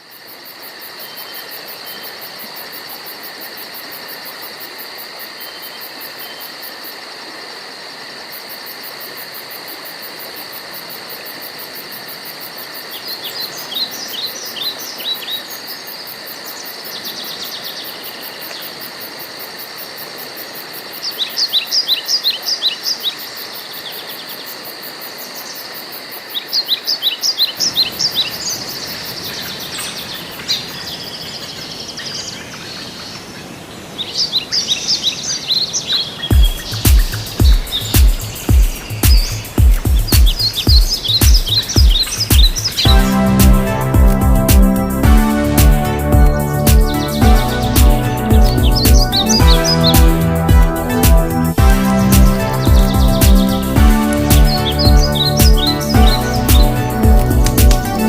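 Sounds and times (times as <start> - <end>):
insects pulsing chorus: 0.0 - 34.0, 35.1 - 57.1
songbird singing descending notes: 40.3 - 58.0.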